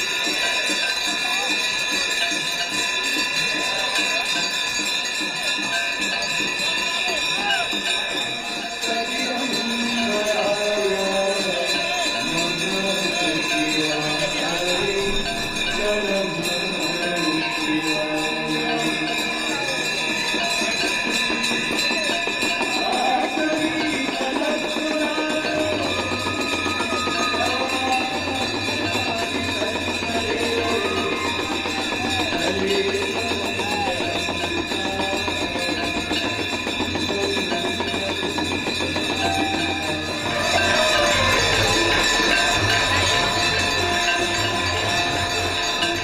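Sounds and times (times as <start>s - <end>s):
bells ringing: 0.0s - 46.0s
hand percussion: 0.0s - 46.0s
devotional singing: 8.8s - 19.9s.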